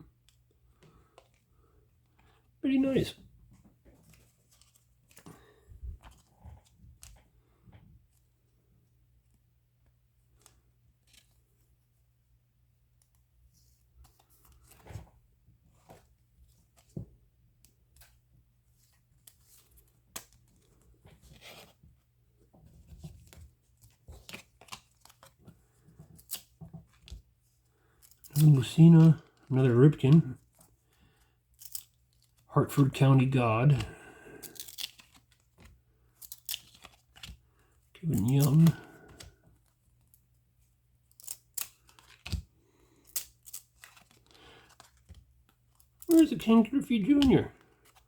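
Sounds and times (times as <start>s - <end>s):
trading cards flipping: 23.0s - 27.2s, 33.7s - 37.4s, 38.2s - 39.7s, 41.1s - 48.0s
wrapper crinkling and tearing: 34.4s - 35.6s.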